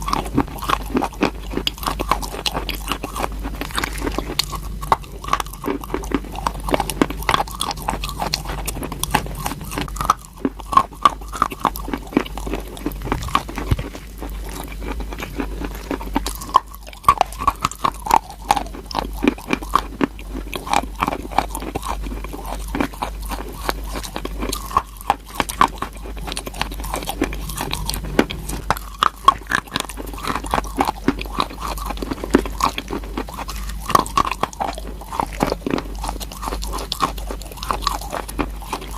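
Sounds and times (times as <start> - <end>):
chewing crunchy chalk: 0.0 - 38.9.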